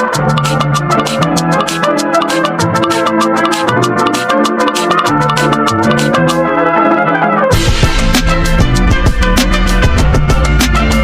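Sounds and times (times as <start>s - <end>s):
background music with drum beat: 0.0s - 6.5s, 7.5s - 11.0s.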